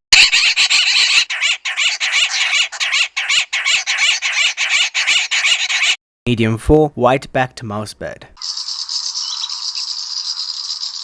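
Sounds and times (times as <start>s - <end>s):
birds rasping chatter: 0.2s - 6.0s, 8.4s - 11.0s.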